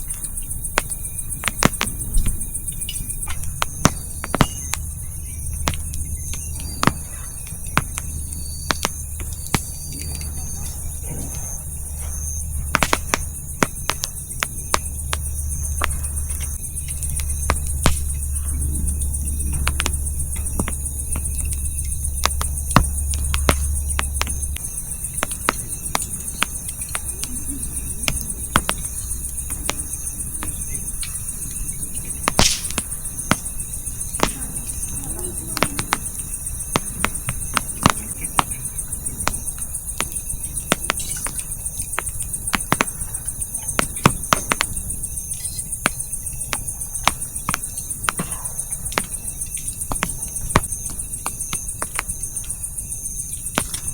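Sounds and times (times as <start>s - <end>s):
campfire crackling and popping: 0.0s - 53.9s
crickets chirping: 0.0s - 53.9s
low hum: 1.9s - 41.3s.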